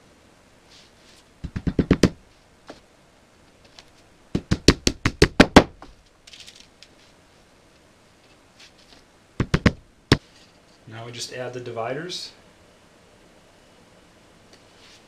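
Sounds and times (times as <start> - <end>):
sharp knocks: 4.4 - 5.9, 9.4 - 10.2.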